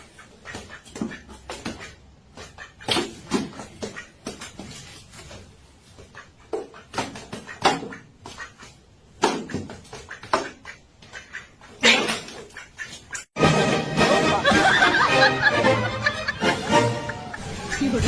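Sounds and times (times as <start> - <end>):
animals scuffling: 0.0 - 7.6.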